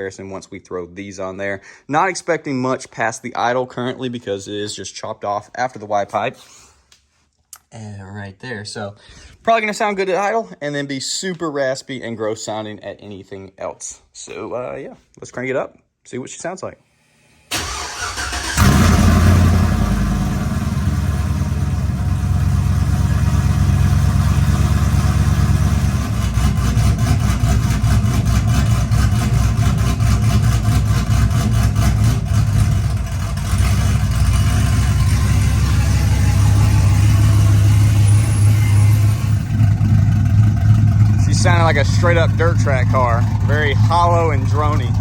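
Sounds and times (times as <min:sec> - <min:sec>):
truck engine idling: 0:17.5 - 0:45.0.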